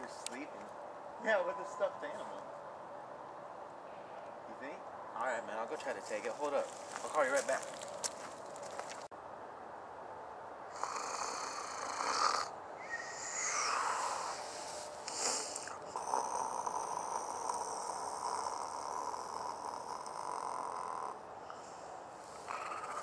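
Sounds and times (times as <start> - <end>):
man snoring: 10.7 - 12.5, 13.2 - 21.8, 22.4 - 23.0.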